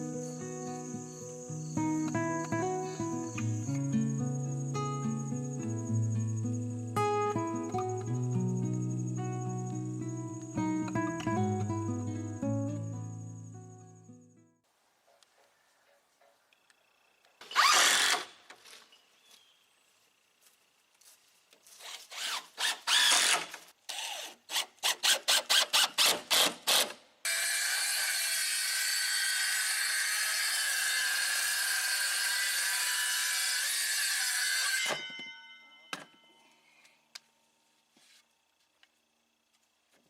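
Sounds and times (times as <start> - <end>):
power tool whining: 17.4 - 18.4.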